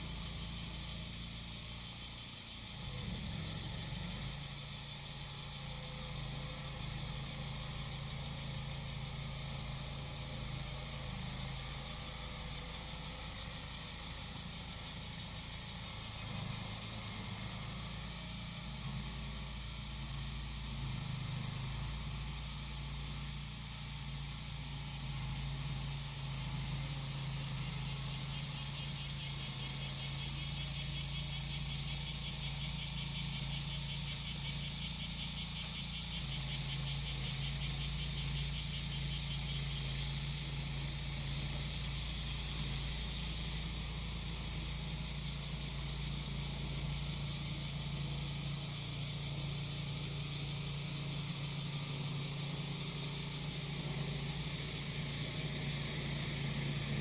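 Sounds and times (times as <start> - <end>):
cicadas droning: 0.0 - 57.0
grass cutter engine running: 2.7 - 11.7, 25.1 - 57.0.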